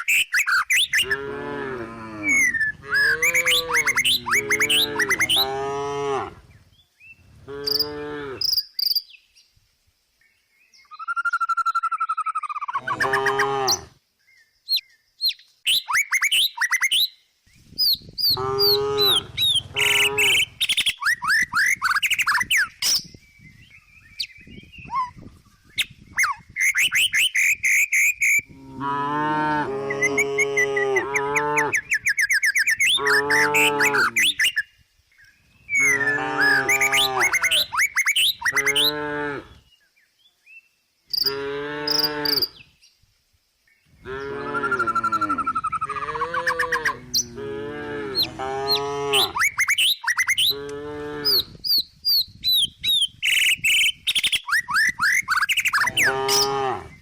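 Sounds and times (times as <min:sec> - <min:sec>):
birds chirping: 0:00.0 - 0:05.7, 0:17.6 - 0:28.5, 0:29.9 - 0:39.1
cow mooing: 0:01.0 - 0:06.4, 0:07.5 - 0:08.4, 0:12.8 - 0:13.9, 0:18.3 - 0:20.5, 0:28.5 - 0:31.8, 0:33.0 - 0:34.2, 0:35.8 - 0:37.7, 0:38.6 - 0:39.6, 0:44.0 - 0:49.4, 0:55.8 - 0:57.0.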